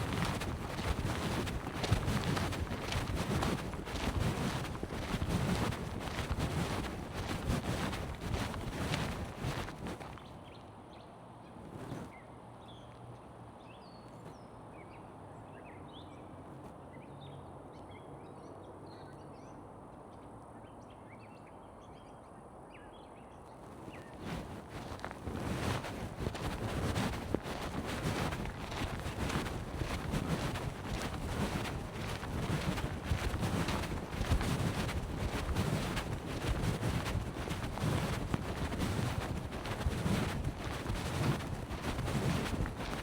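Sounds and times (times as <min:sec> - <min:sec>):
wind noise on microphone: 0:00.0 - 0:10.6, 0:11.6 - 0:12.2, 0:23.6 - 0:43.0.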